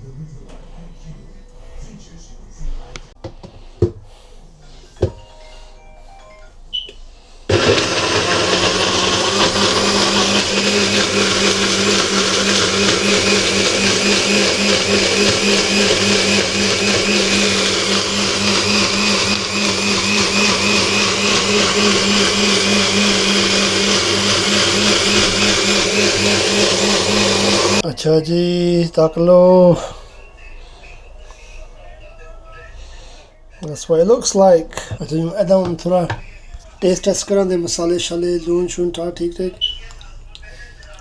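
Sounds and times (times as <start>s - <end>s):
electric blender running: 7.5s - 27.8s.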